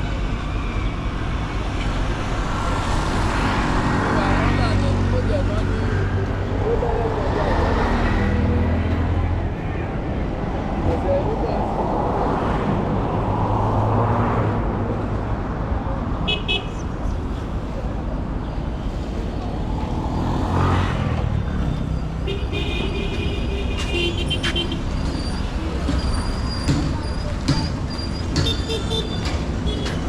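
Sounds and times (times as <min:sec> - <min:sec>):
street traffic: 0:00.0 - 0:30.0
vehicle passing: 0:02.4 - 0:09.6
car horns tooting: 0:22.2 - 0:24.9, 0:28.2 - 0:30.0.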